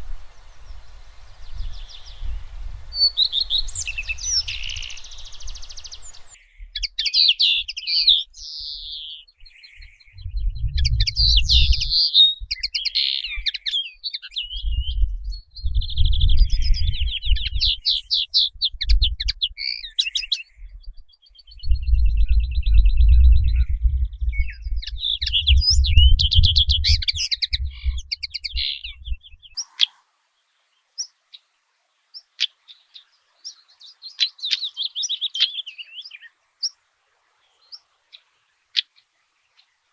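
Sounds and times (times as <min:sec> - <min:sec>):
songbirds chirping and trilling: 0:00.0 - 0:39.9
low rumble: 0:10.2 - 0:11.9.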